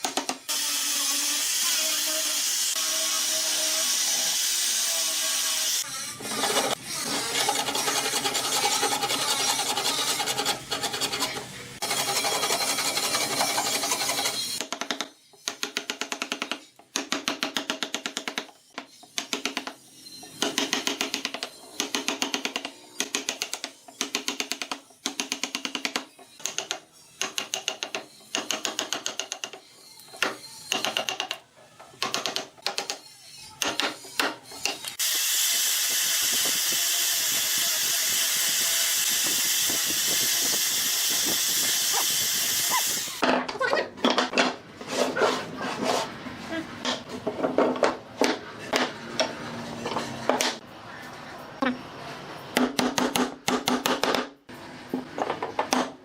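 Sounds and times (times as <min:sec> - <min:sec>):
rasping strokes on wood: 0:05.8 - 0:14.6
power tool running: 0:35.0 - 0:43.2.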